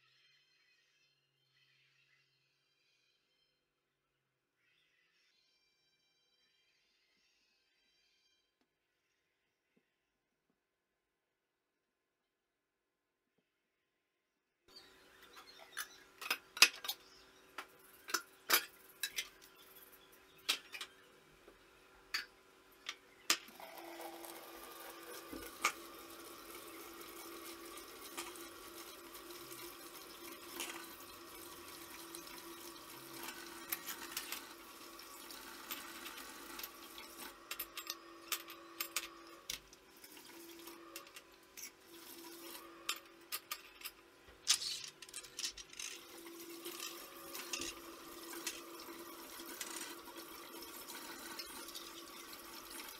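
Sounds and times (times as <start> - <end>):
tap running water into sink: 23.5 - 37.3.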